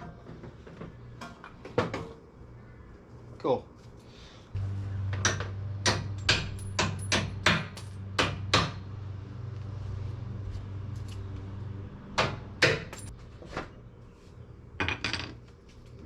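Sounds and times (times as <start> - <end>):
steady low hum: 4.0 - 14.8.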